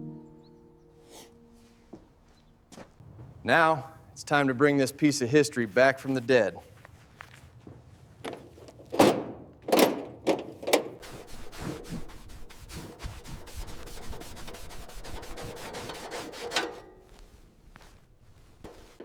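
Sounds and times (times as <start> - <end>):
rapid rhythmic rubbing: 11.0 - 16.8.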